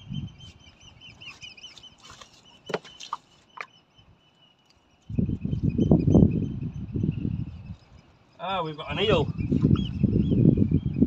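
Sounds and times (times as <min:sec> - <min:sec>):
small bird chirping: 0:00.0 - 0:11.0.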